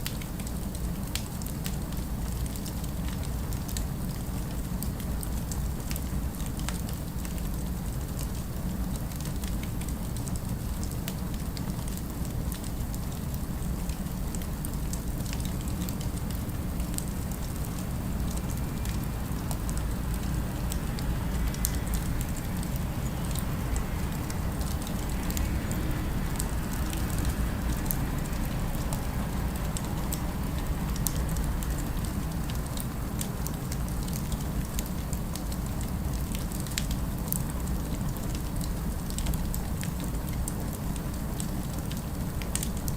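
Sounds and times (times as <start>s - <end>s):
distant city rumble: 9.6s - 36.4s
fireplace crackling and popping: 26.4s - 42.9s.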